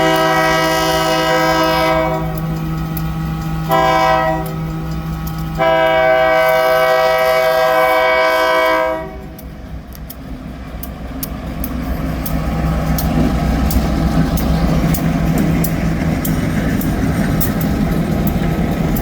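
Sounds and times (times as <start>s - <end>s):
locomotive horn blasts: 0.0s - 2.4s, 3.7s - 4.6s, 5.6s - 9.4s.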